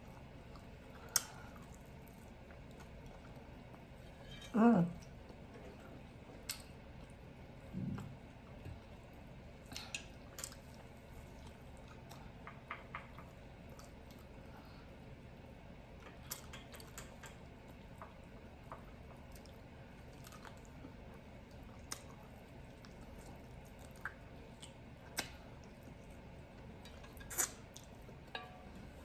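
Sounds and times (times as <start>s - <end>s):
person chewing food: 16.1s - 28.3s.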